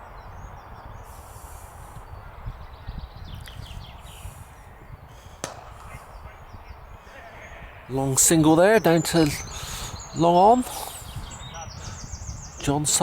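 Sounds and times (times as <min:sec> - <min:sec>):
cricket bat striking ball: 0:05.4 - 0:06.0.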